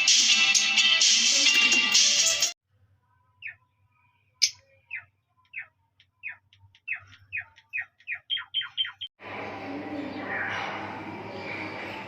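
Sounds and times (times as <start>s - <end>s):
music: 0.0s - 2.6s
lovebirds chirping: 3.3s - 9.1s.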